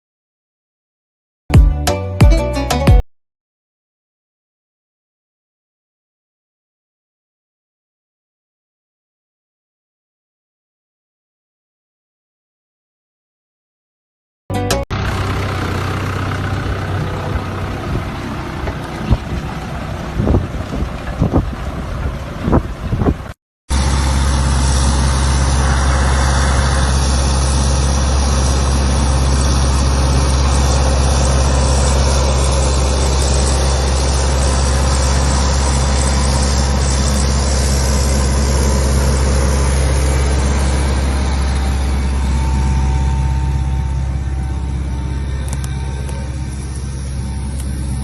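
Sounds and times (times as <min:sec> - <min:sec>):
tractor engine droning: 0:14.5 - 0:48.0.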